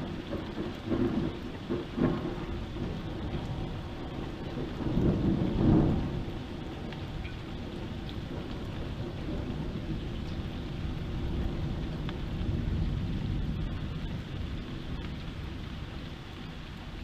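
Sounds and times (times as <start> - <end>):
heavy rain: 0.0 - 17.0
thunder rumbling: 0.0 - 17.0.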